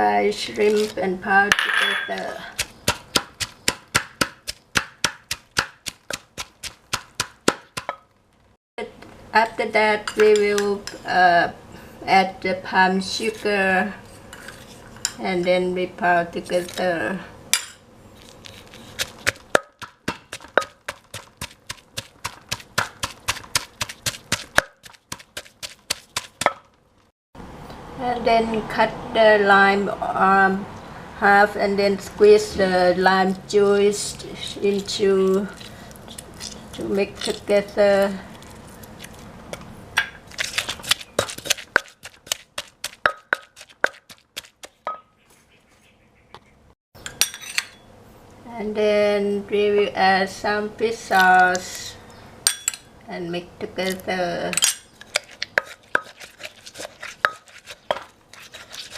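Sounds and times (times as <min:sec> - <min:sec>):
pestle pounding in a mortar: 0:02.5 - 0:08.0, 0:19.0 - 0:26.7, 0:40.0 - 0:45.0, 0:55.0 - 0:58.9.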